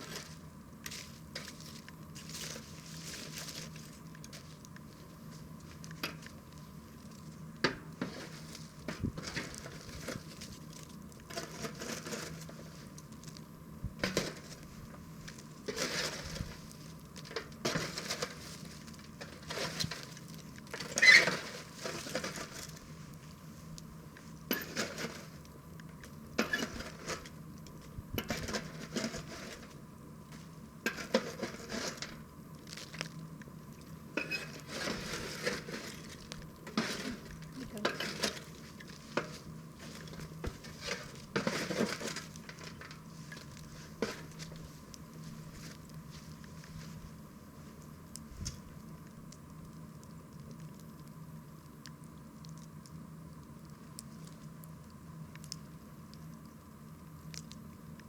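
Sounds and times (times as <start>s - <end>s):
low steady hum: 0.0s - 58.0s
wood fire crackling and popping: 0.0s - 58.0s.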